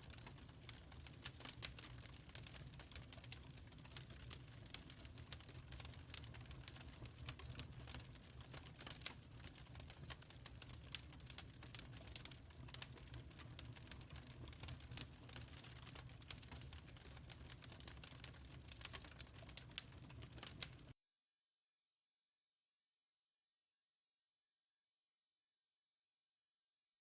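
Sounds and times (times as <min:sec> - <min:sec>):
wood fire crackling and popping: 0:00.0 - 0:20.9.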